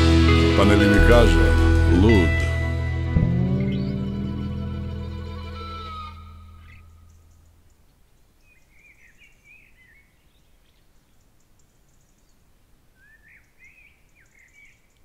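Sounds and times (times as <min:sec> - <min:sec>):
music: 0:00.0 - 0:06.6
quiet outdoor hiss: 0:00.9 - 0:15.0
songbird warbling: 0:03.2 - 0:12.4.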